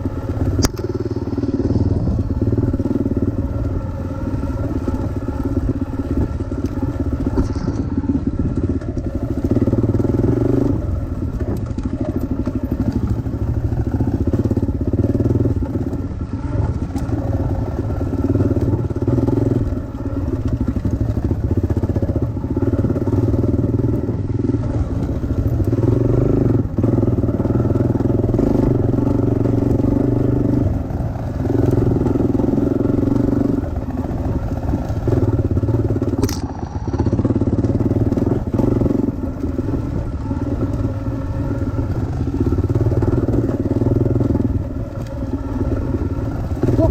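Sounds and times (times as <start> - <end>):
dirt bike engine revving: 0.0 - 46.9.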